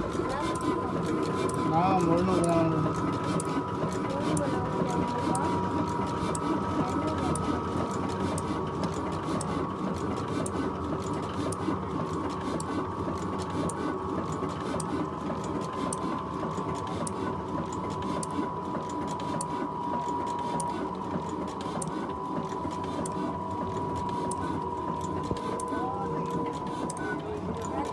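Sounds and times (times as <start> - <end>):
high mechanical whine: 0.0 - 9.5, 16.6 - 27.9.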